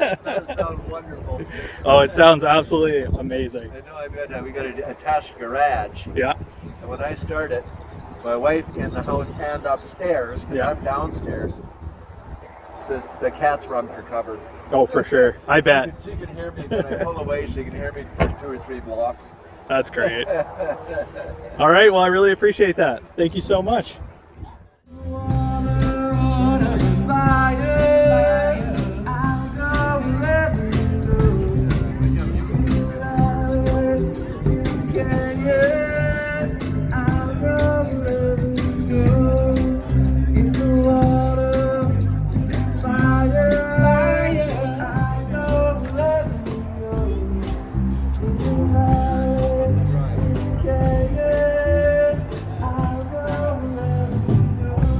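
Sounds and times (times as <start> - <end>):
live rock band playing: 24.9 - 54.9
person singing: 24.9 - 54.9.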